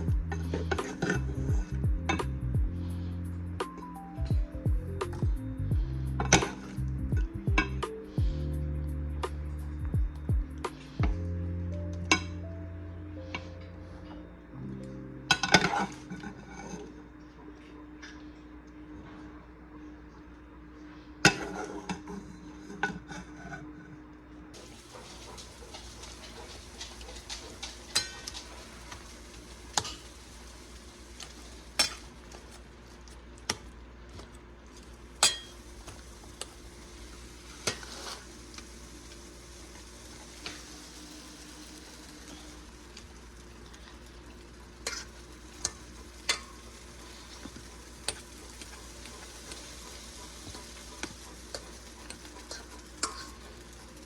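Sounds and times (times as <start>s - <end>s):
pot of water hissing: 0.0s - 3.7s, 4.8s - 11.4s, 24.6s - 33.6s, 34.7s - 54.0s
utensils and dishes clinking: 15.3s - 16.9s, 24.6s - 32.4s, 35.2s - 38.6s, 44.8s - 49.6s, 50.4s - 53.5s.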